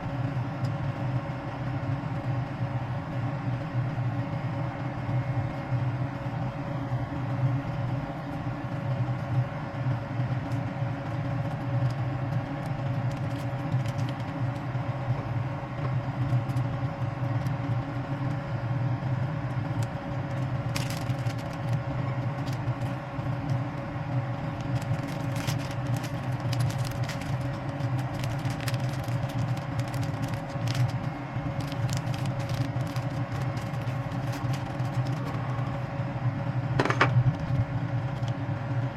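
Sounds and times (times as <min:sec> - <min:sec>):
moving vehicle rumble: 0:19.6 - 0:38.6.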